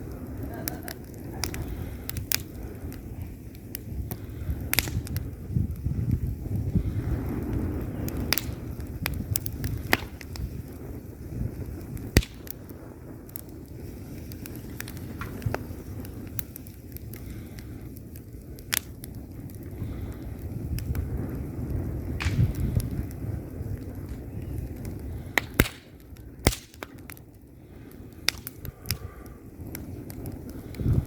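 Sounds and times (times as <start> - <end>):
burning wood crackling and popping: 0.0 - 31.0
fire flames rumbling: 0.0 - 31.0.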